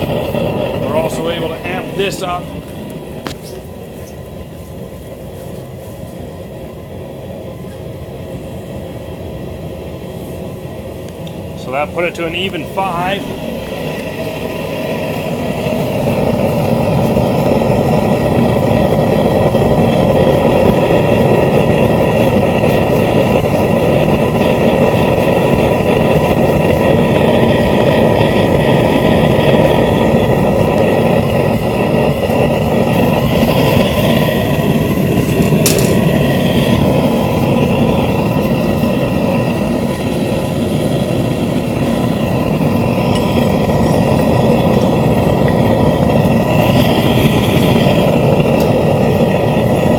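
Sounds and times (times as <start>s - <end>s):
gas burner flame rushing: 0.0s - 49.9s.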